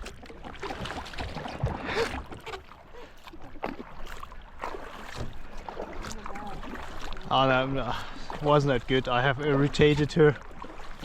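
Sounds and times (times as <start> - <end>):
water splashing and sloshing: 0.0 - 11.0
rowboat knocks: 4.6 - 11.0.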